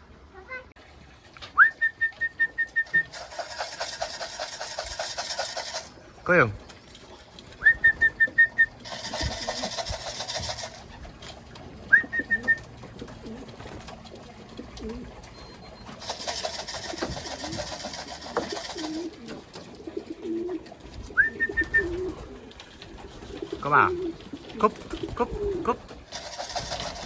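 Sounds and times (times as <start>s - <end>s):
wing flapping: 1.2s - 27.0s
pigeons cooing: 1.4s - 27.0s
short rising whistle notes: 1.6s - 3.0s.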